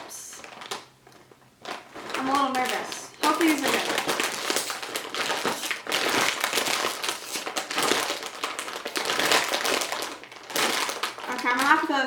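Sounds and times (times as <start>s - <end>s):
chip bag crinkling: 0.0s - 12.0s.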